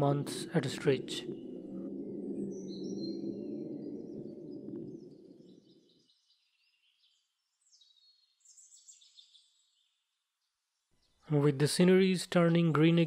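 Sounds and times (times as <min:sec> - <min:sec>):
low rushing noise: 0:00.0 - 0:05.7
faint high bird chirps: 0:00.0 - 0:11.5.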